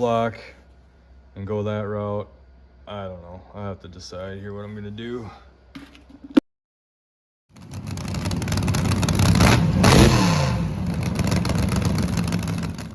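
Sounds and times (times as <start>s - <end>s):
car engine revving: 7.7s - 12.9s.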